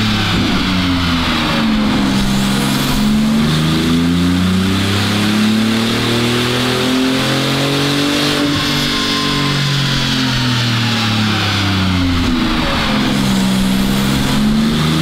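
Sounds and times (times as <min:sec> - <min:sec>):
car engine revving on dyno: 0:00.0 - 0:15.0.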